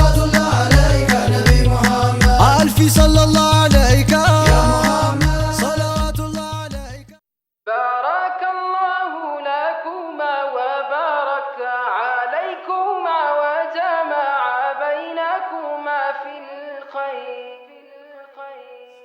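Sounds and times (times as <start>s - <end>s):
wordless melismatic singing: 0.0s - 6.8s.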